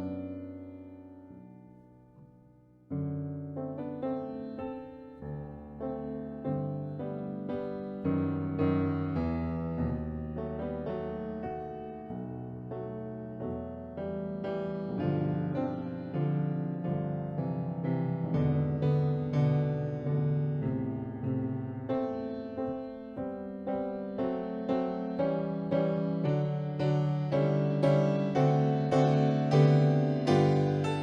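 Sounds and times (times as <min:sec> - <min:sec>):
slow solo piano: 0:00.0 - 0:31.0.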